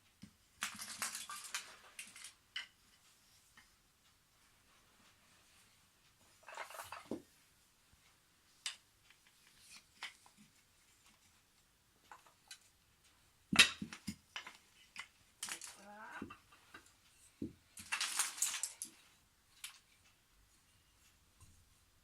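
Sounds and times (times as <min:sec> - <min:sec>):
wooden train track pieces clattering: 0:00.6 - 0:02.7, 0:06.4 - 0:07.2, 0:13.5 - 0:16.9, 0:17.7 - 0:19.9.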